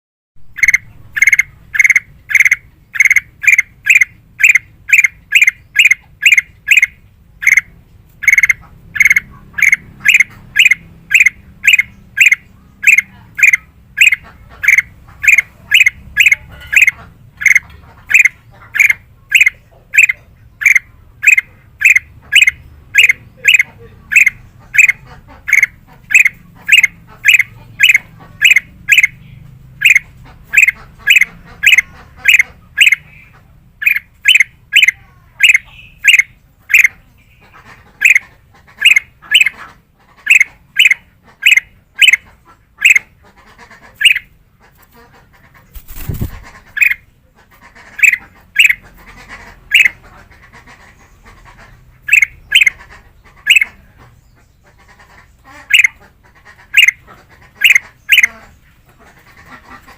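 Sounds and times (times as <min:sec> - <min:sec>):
bulbul calling sharp notes: 0:00.4 - 0:37.4, 0:48.0 - 0:48.9, 0:52.0 - 0:53.9.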